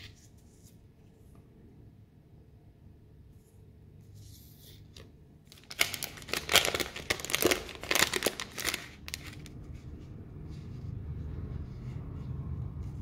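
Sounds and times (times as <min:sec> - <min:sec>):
packaging crinkling: 0:05.5 - 0:09.5.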